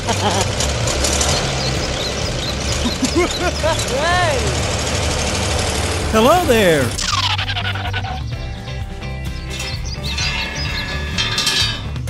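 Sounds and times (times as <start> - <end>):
tractor engine droning: 0.1 - 7.0.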